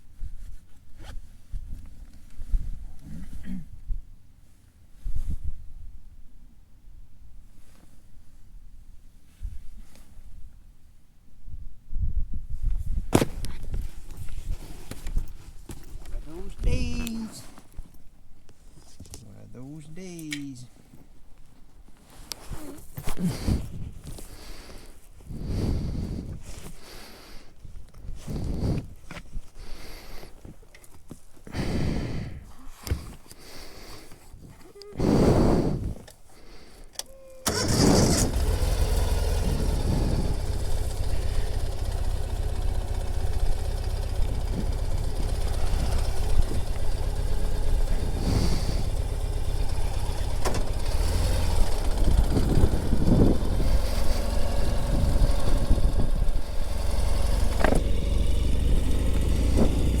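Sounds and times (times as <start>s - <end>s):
motorcycle engine idling: 37.5s - 60.0s.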